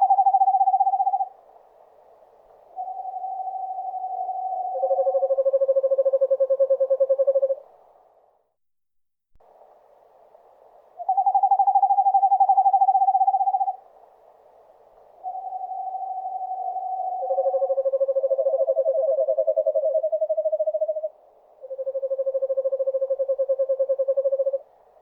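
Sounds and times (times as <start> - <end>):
owl trills: 0.0 - 1.4, 2.7 - 7.7, 11.0 - 13.9, 15.2 - 24.8.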